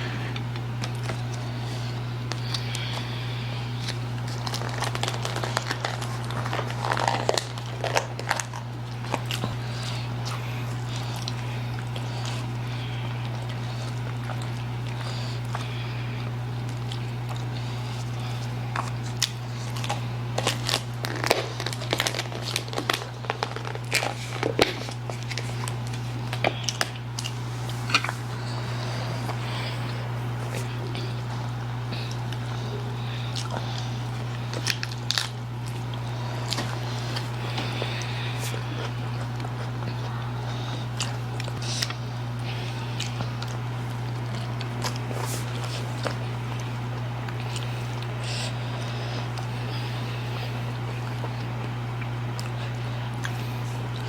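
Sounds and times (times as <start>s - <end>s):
chewing and slurping noodles: 0.0s - 54.0s
steady low hum: 0.0s - 54.0s.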